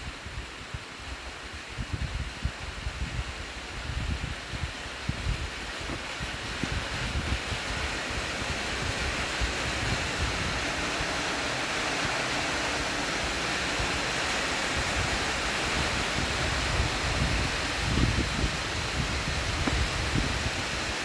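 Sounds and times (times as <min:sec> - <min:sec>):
steady rain falling: 0:00.0 - 0:21.0
wind rumble on microphone: 0:00.0 - 0:21.0.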